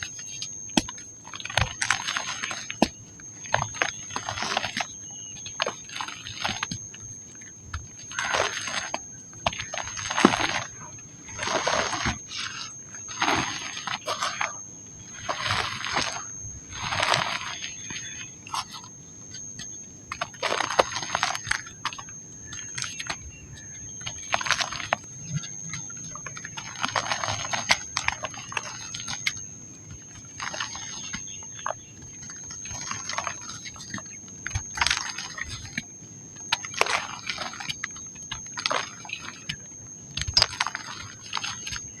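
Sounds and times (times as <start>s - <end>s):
dry mud crumbling and crunching: 0.0s - 42.0s
faint high whine: 0.0s - 42.0s
grains falling and crackling: 0.8s - 18.9s, 20.1s - 35.8s.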